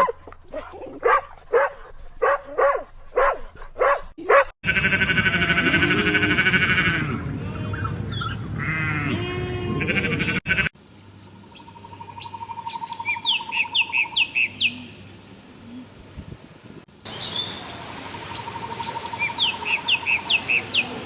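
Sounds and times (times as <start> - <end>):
animal calls: 4.3 - 10.7.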